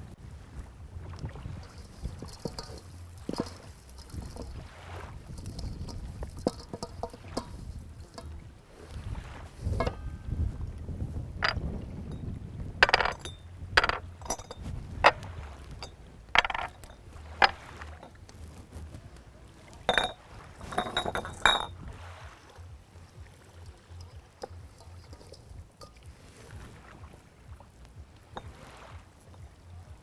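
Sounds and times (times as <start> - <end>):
cookware clinking and clattering: 1.6 - 4.6, 5.3 - 8.4, 12.8 - 15.2, 15.8 - 18.1, 19.9 - 21.8, 24.0 - 26.0.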